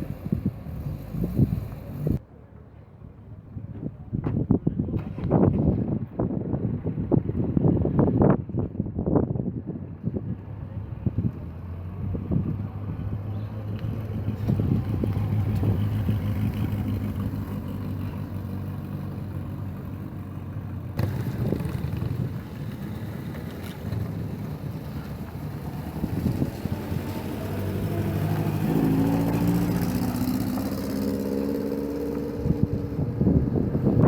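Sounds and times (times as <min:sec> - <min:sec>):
vehicle engine idling and revving: 0:00.0 - 0:02.2, 0:09.8 - 0:34.0.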